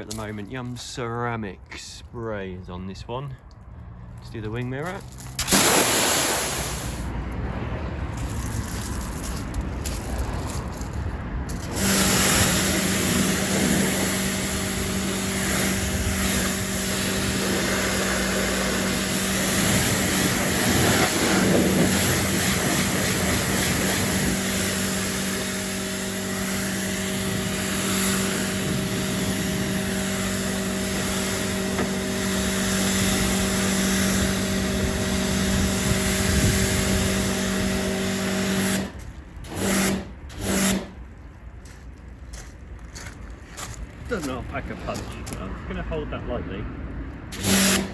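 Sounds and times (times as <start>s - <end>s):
high-pressure water jet hissing: 5.4s - 7.2s, 11.5s - 41.0s, 47.3s - 47.9s
pressure washer pump humming: 5.4s - 7.2s, 11.5s - 41.0s, 47.3s - 47.9s.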